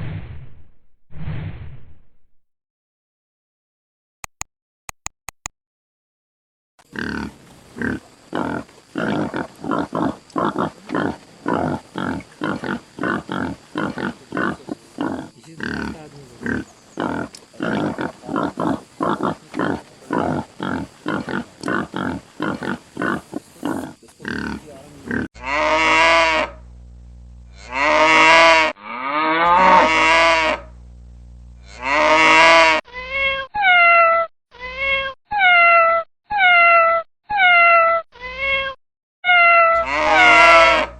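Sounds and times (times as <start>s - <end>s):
animal calls: 7.0s - 26.6s, 39.3s - 40.9s
low hum: 26.5s - 27.7s, 30.6s - 31.7s
cat meowing: 33.0s - 40.8s.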